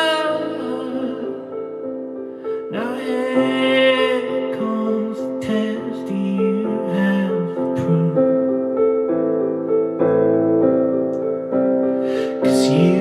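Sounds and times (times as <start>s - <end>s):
slow piano chords: 0.0s - 13.0s
person singing long wavering note: 12.4s - 13.0s.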